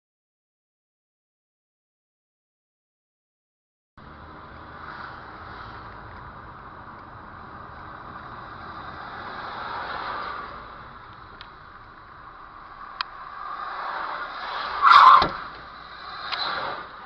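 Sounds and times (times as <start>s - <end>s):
car driving on road: 4.0s - 17.0s.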